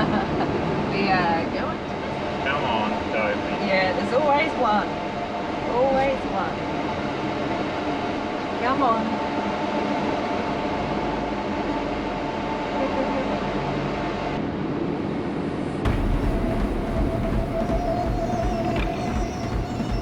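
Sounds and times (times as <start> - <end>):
heavy low rumble: 15.9 - 20.0
truck diesel engine whining drone: 15.9 - 20.0.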